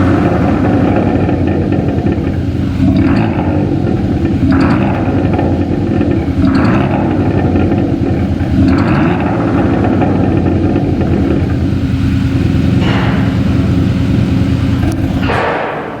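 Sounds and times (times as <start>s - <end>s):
car exhaust note: 0.0s - 16.0s.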